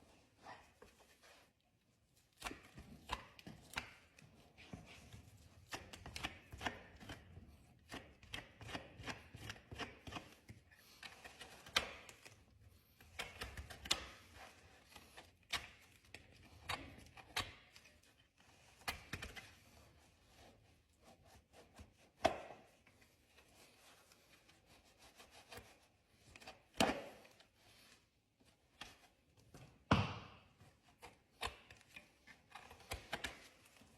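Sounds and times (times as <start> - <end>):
hoof trimming snaps and scraping: 2.3 - 14.3, 14.9 - 18.0.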